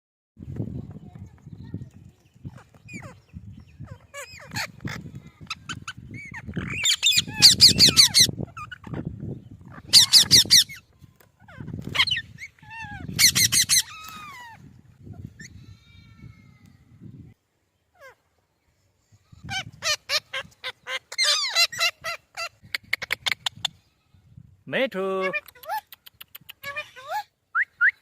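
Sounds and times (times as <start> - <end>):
parrot screeching: 3.8 - 9.0, 9.7 - 10.8, 11.4 - 14.6, 19.4 - 22.5
parrot chirps and whistles: 5.7 - 9.0, 9.9 - 10.8, 12.0 - 14.6, 26.5 - 28.0.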